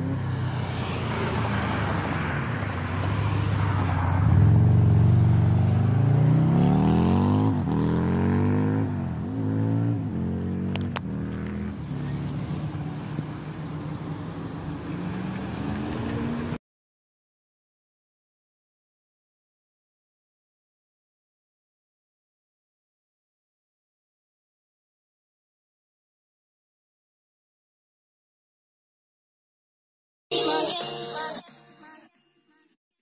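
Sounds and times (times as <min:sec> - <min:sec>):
vehicle engine accelerating through gears: 0:04.2 - 0:13.2, 0:13.9 - 0:16.6.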